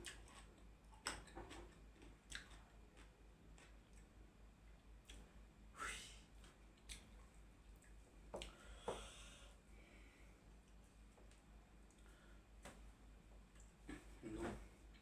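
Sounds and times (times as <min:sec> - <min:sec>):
food crunching and clicking: 0:00.0 - 0:05.3
soft chewing: 0:00.0 - 0:05.5, 0:06.3 - 0:15.0
low steady hum: 0:00.0 - 0:15.0.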